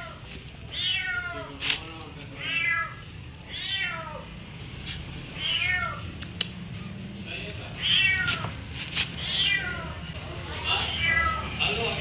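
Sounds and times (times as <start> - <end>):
cat meowing: 9.2 - 10.1, 10.8 - 11.5.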